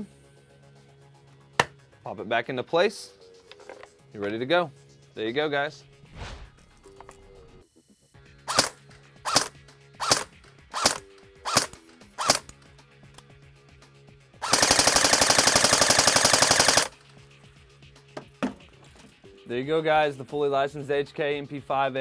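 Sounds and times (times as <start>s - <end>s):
airsoft gun single shots: 8.5s - 10.2s
airsoft gun full-auto burst: 8.5s - 12.5s, 14.4s - 17.0s.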